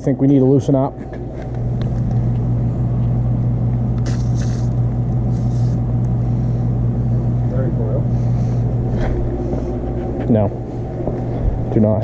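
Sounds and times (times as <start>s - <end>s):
machine humming: 0.0s - 12.0s
aerosol spray hissing: 4.0s - 4.7s.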